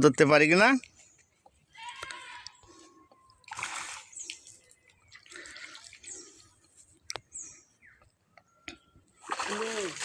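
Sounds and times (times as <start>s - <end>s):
pond water splashing: 3.4s - 6.8s, 9.1s - 10.0s.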